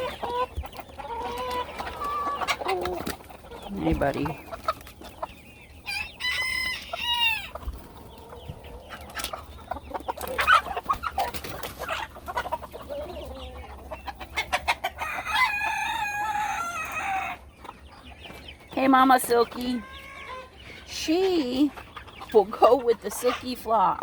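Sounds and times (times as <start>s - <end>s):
chickens clucking: 0.0s - 24.0s
rooster crowing: 5.9s - 7.5s, 15.0s - 17.4s.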